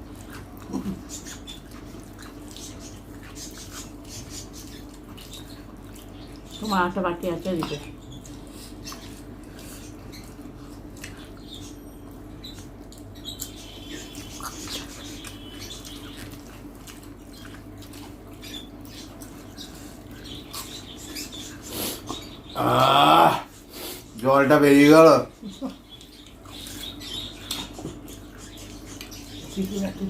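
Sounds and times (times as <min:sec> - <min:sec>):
chewing and mouth noises: 0:00.0 - 0:06.7, 0:07.6 - 0:22.4, 0:25.7 - 0:30.0
steady low hum: 0:00.0 - 0:30.0.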